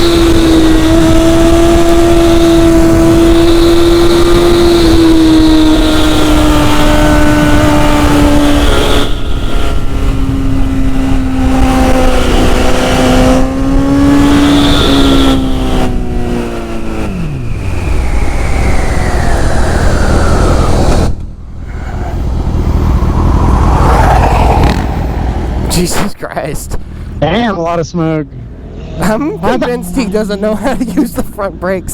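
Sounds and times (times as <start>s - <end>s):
motorcycle engine at high revs: 0.0s - 21.6s, 28.5s - 31.9s
heavy wind rush: 0.0s - 31.9s.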